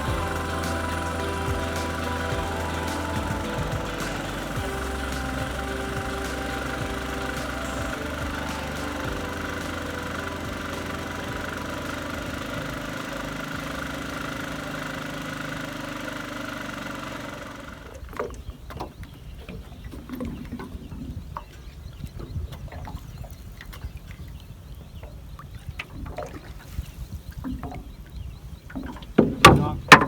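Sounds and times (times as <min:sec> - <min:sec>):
small engine running: 0:00.0 - 0:18.1.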